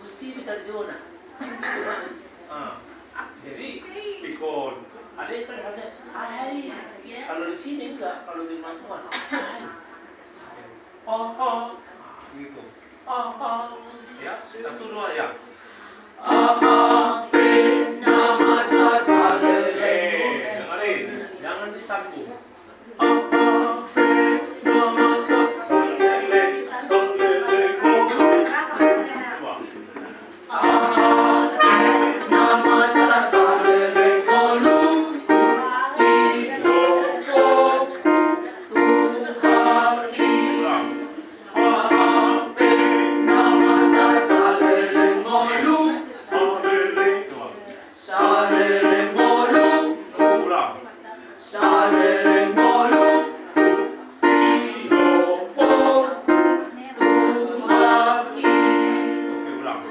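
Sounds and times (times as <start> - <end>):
choir singing in parts: 16.2 - 20.6, 23.0 - 29.2, 30.4 - 50.7, 51.4 - 59.9.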